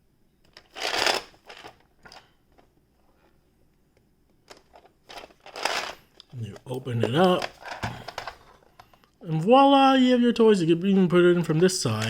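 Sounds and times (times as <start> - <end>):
plastic toy rustling scrape: 0.5 - 2.2, 4.6 - 6.1.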